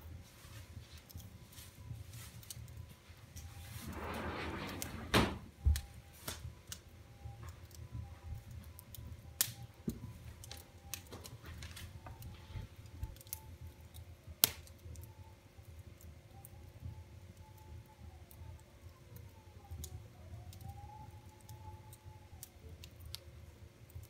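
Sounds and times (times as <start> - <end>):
wood fire crackling: 0.0 - 24.0
sharp pops of fire: 3.4 - 6.8, 8.9 - 11.9, 14.4 - 14.8.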